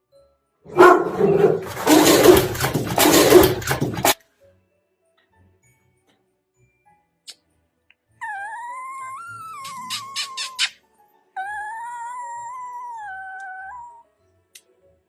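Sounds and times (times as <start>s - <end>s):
dog howling: 0.7s - 3.6s, 11.4s - 14.0s
dog yelping: 0.7s - 4.2s.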